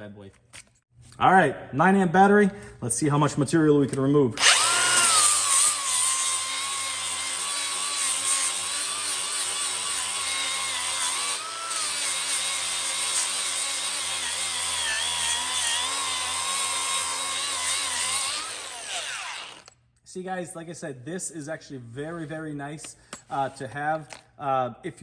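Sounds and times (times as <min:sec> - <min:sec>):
angle grinder grinding steel: 0:04.4 - 0:19.8.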